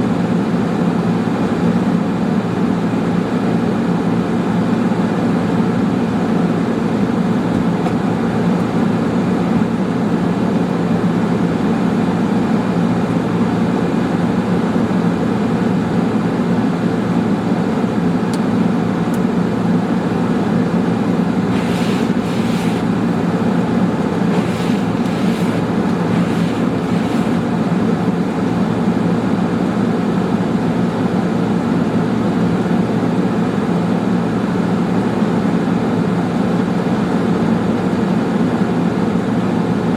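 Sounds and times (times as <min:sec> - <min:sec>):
car road and engine drone: 0:20.8 - 0:28.8.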